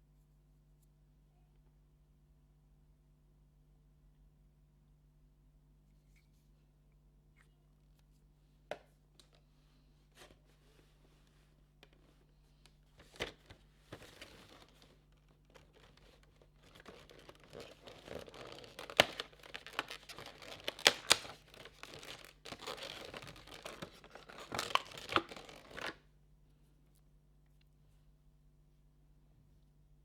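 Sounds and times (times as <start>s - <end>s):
packaging tearing and crinkling: 13.2s - 26.0s.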